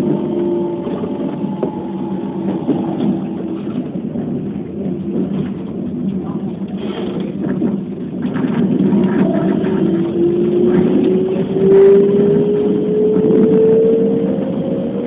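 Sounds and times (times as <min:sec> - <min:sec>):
steady tone: 0:00.0 - 0:05.0
train running rumble: 0:00.0 - 0:15.0.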